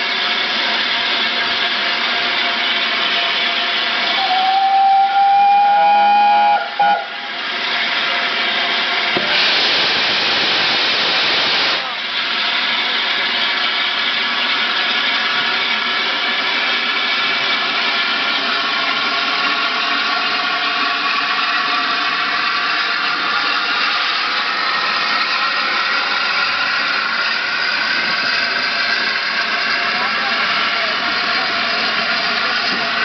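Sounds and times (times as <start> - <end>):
steam train departing: 0.0 - 33.0.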